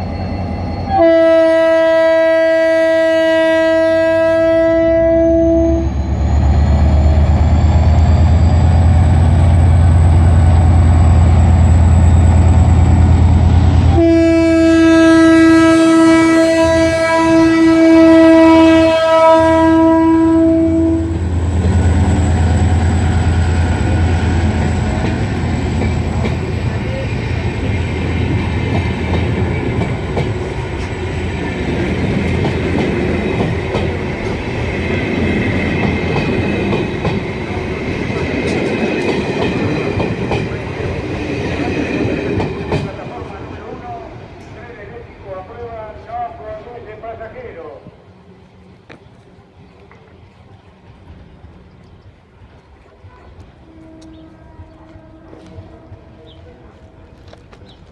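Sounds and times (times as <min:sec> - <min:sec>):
locomotive air horn blasts: 0:00.9 - 0:06.0, 0:13.9 - 0:21.2, 0:53.7 - 0:56.2.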